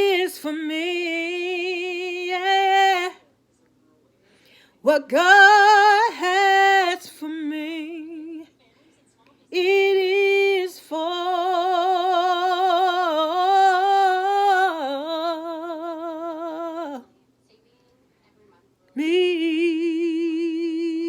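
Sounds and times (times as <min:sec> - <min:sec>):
woman singing unaccompanied: 0:00.0 - 0:03.2, 0:04.8 - 0:08.6, 0:09.5 - 0:17.2, 0:19.0 - 0:21.0.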